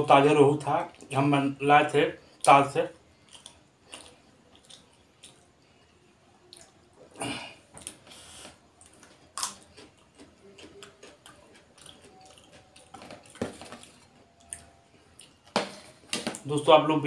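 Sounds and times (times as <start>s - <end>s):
person chewing: 3.1s - 15.5s.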